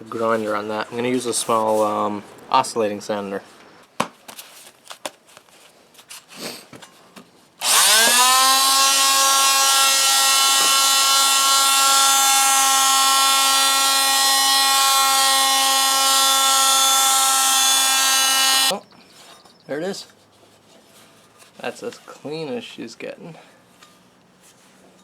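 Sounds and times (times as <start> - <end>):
electric sander whining: 7.6 - 18.7.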